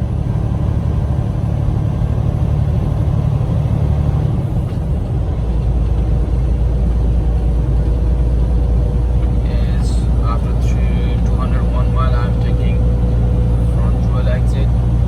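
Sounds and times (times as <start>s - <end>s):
truck engine and road rumble: 0.0s - 15.0s.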